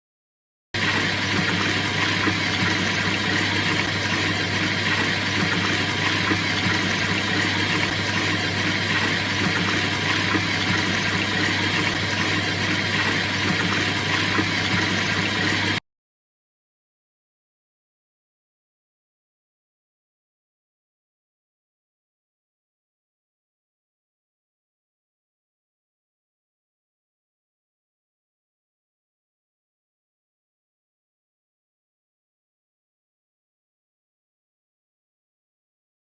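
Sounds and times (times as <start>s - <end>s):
washing machine running: 0.8s - 15.8s.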